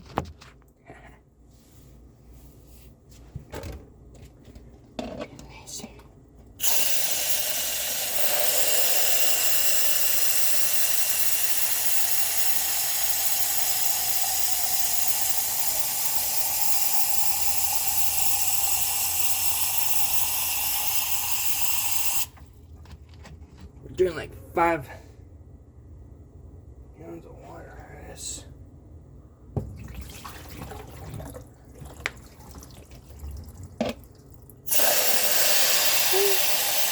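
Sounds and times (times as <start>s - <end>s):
water rushing out of drain: 29.8s - 33.8s, 34.7s - 36.9s.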